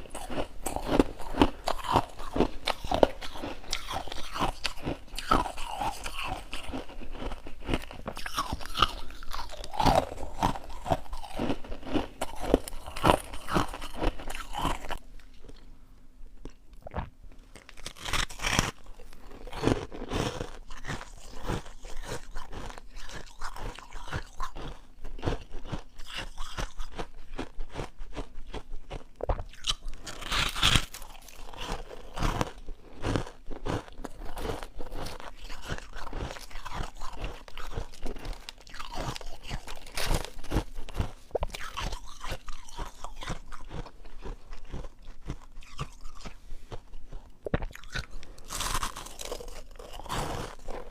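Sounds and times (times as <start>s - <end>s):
person crunching ice: 0.0s - 15.4s, 17.6s - 50.9s.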